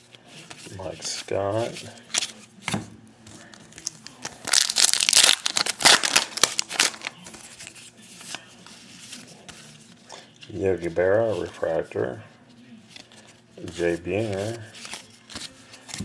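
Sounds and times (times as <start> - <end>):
rustling of wrapper and cards: 3.3 - 11.6, 12.9 - 16.0
wrapper crinkling and tearing: 3.5 - 7.7.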